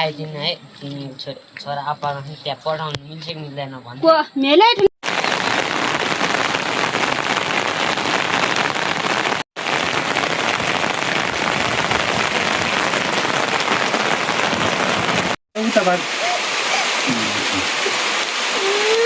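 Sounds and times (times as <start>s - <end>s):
steady rain patter: 5.0s - 19.0s.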